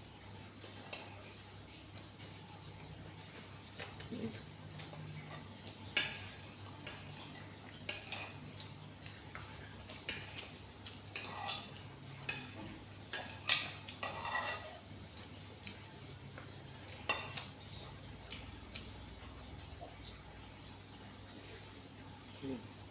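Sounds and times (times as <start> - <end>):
cutlery clinking against a bowl: 0.6 - 1.4, 4.8 - 17.6.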